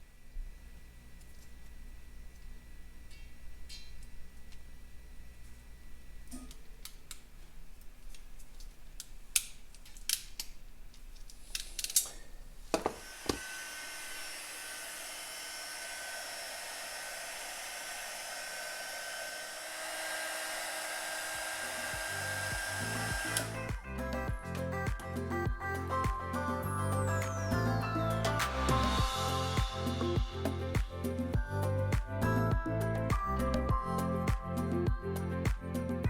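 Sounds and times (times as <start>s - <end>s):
faint steady whine: 0.0s - 9.8s, 10.6s - 35.1s
clicks of handling small parts: 6.3s - 12.3s
heat gun blowing: 12.7s - 24.2s.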